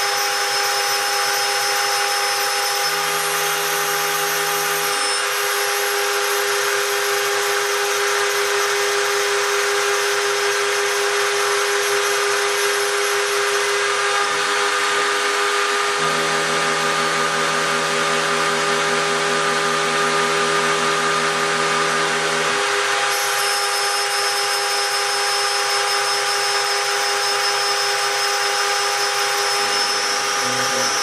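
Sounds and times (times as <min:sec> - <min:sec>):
router spindle whine: 0:00.0 - 0:31.0.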